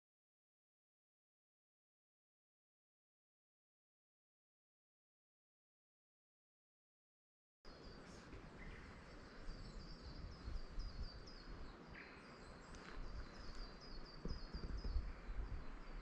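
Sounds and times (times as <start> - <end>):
low microphone rumble: 12.9 - 16.0.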